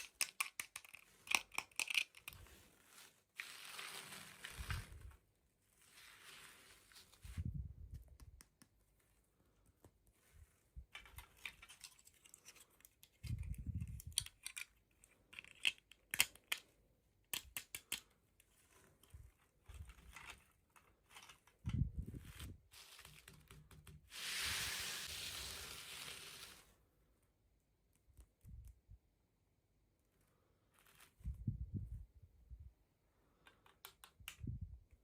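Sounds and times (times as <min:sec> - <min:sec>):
small plastic clicks: 0:00.0 - 0:02.5, 0:10.9 - 0:21.8, 0:33.3 - 0:35.0.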